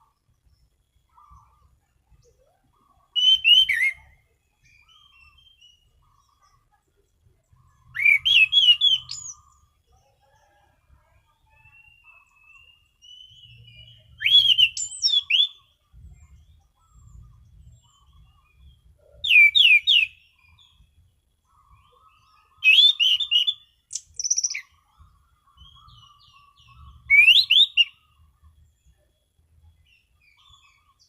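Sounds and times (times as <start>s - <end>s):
soft bird twittering: 0.0s - 31.0s
bird whistling song phrases: 2.2s - 6.6s, 7.7s - 9.5s, 11.4s - 20.9s, 21.5s - 24.8s, 25.4s - 28.1s.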